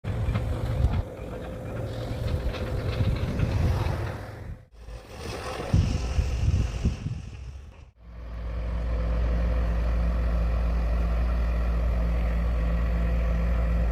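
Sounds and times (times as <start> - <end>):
machinery clatter: 0.0 - 4.6
heavy machinery rumble: 0.0 - 13.9.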